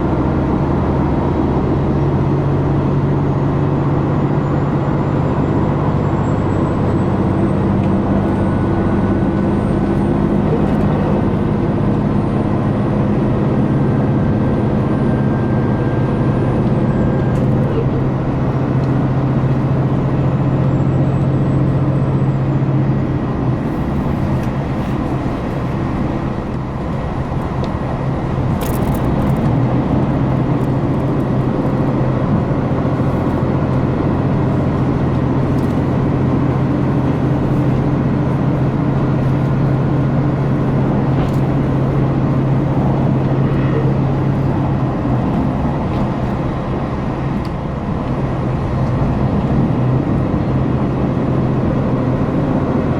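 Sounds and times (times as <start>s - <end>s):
diesel railcar engine drone: 0.0s - 52.9s
rail running noise: 0.0s - 52.9s.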